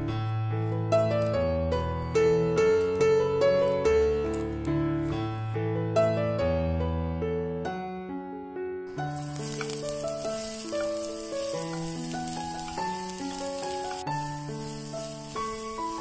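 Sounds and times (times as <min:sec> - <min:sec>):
soft piano music: 0:00.0 - 0:16.0
onions sizzling in oil: 0:08.9 - 0:16.0.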